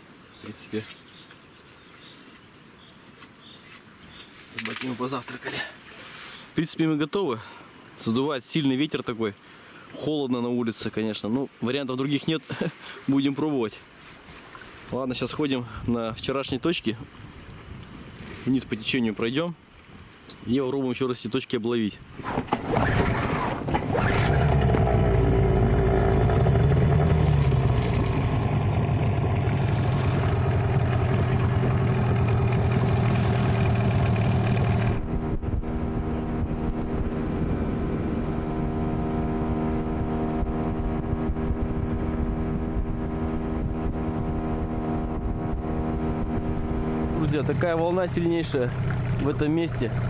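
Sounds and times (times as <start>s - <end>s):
outboard motor running: 22.2s - 50.0s.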